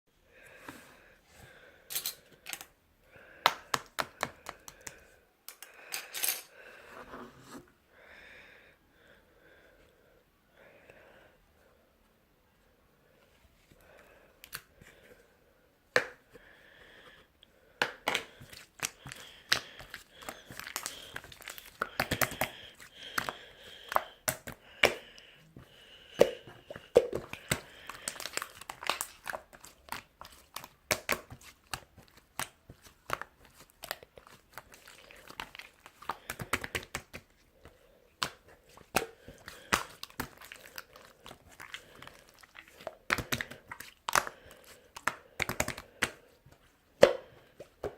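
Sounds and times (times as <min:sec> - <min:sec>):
crinkling and rustling handling noise: 0:18.0 - 0:47.9.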